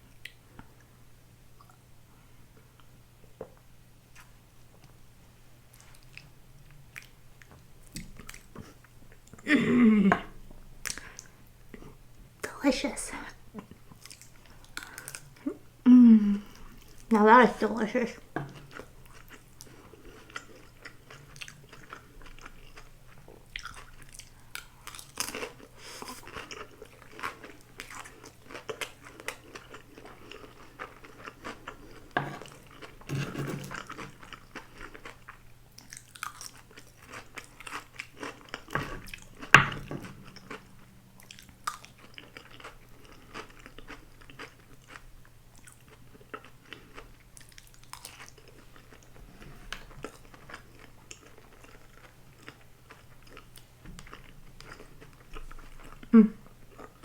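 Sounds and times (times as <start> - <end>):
close-miked chewing and crunching: 5.7 - 9.5, 13.6 - 15.6, 18.4 - 57.0.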